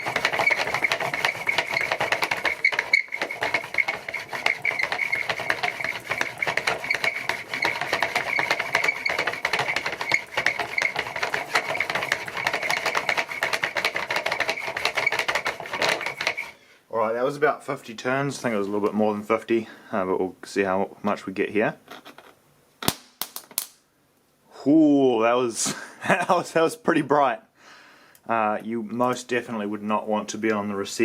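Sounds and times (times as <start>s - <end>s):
generator whirring with rapid clicks: 0.0s - 16.5s.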